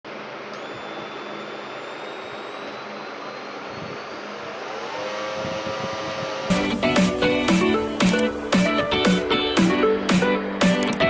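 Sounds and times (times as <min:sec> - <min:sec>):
small fan motor whirring: 0:00.1 - 0:09.2
music: 0:06.5 - 0:11.0.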